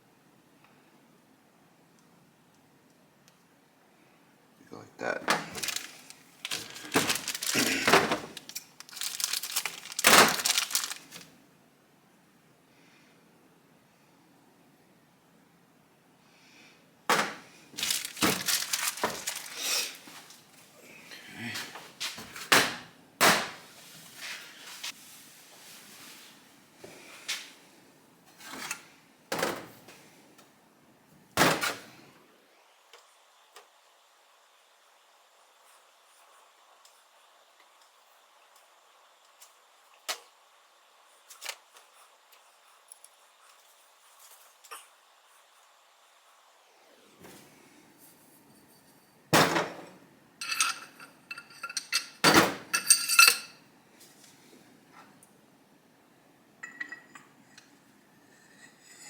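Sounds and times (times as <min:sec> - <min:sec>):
tools clattering on workbench: 0:05.3 - 0:10.2, 0:17.1 - 0:20.4, 0:48.8 - 0:53.6, 0:56.6 - 0:57.7
metal tools knocking: 0:50.4 - 0:53.5.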